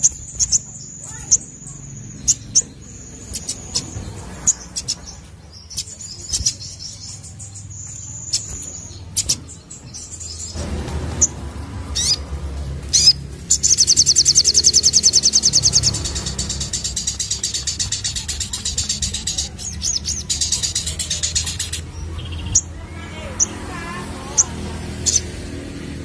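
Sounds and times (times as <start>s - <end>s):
bird rapid trill: 0.0s - 25.8s
bird singing high thin notes: 13.0s - 21.8s.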